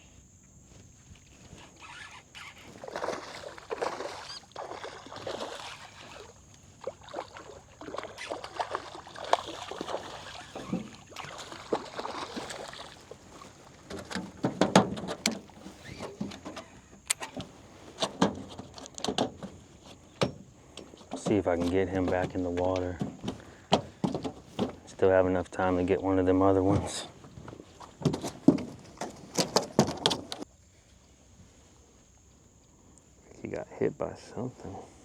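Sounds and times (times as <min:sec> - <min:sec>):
knocks and scuffs in boat: 0:00.1 - 0:32.4
light water splashes: 0:01.5 - 0:30.5
sharp clicks: 0:17.0 - 0:17.4.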